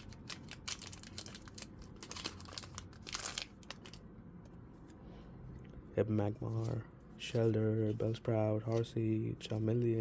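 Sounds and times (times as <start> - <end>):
foil wrapper crinkling: 0.0 - 4.0
foil wrapper ripping: 0.0 - 4.0.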